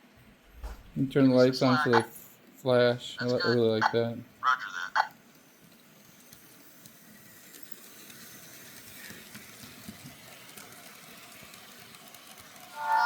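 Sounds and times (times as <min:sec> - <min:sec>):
model train running on track: 0:01.0 - 0:13.0
locomotive sound decoder tones: 0:01.4 - 0:02.1, 0:03.2 - 0:05.1, 0:12.7 - 0:13.0.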